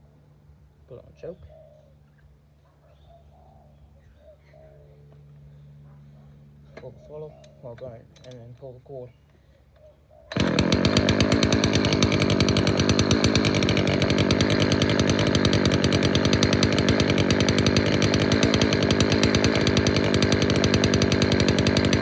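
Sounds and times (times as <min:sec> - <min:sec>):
string trimmer engine running: 0:10.3 - 0:22.0.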